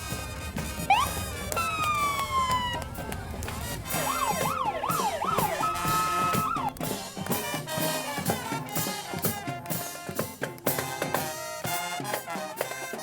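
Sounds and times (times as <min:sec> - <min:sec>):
parade music with drum beat: 0:00.0 - 0:13.0
wailing siren: 0:00.9 - 0:07.0.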